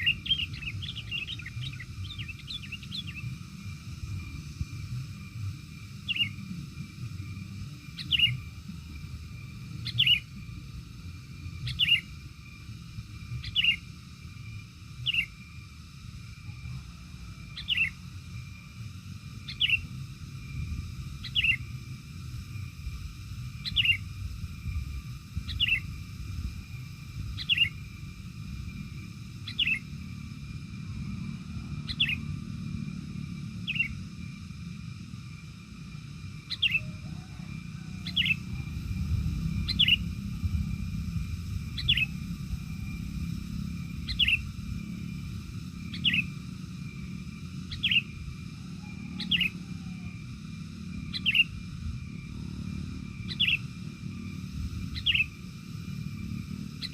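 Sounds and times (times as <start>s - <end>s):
steady low rumble: 0.0s - 56.9s
bird sharp downward call: 39.6s - 40.1s, 44.0s - 44.5s, 48.8s - 50.1s, 51.1s - 51.5s.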